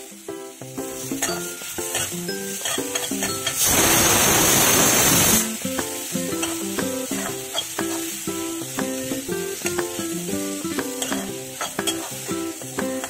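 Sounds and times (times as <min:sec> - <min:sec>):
background music with plucked notes: 0:00.0 - 0:04.2, 0:05.2 - 0:13.0
onions sizzling in oil: 0:00.0 - 0:13.0
spatula stirring: 0:01.1 - 0:03.6, 0:06.4 - 0:08.1, 0:09.6 - 0:12.3.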